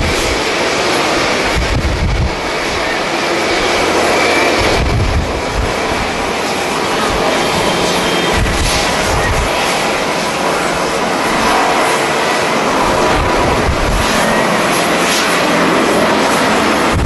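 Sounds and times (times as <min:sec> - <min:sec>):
jet engines running: 0:00.0 - 0:17.0
wind buffeting microphone: 0:00.0 - 0:17.0.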